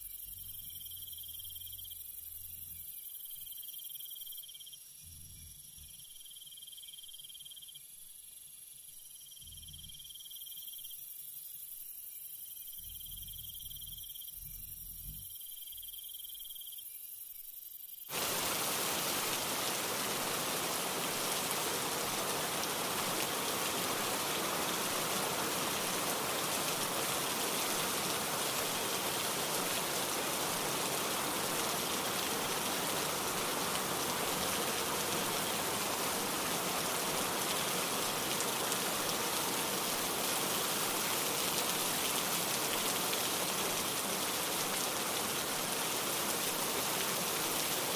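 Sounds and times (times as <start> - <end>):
crickets trilling: 0.0 - 47.9
steady rain falling: 18.0 - 47.9.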